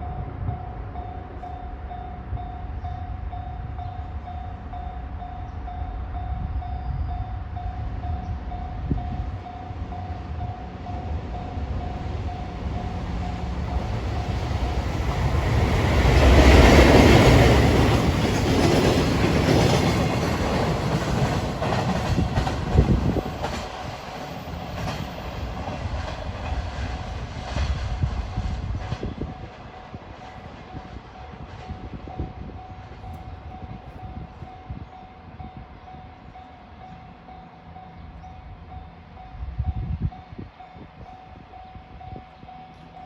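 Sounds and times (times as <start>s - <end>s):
crossing warning bell: 0.0s - 26.6s, 29.2s - 43.0s
train passing: 0.0s - 43.0s
wheels clacking over rail joints: 11.3s - 27.8s.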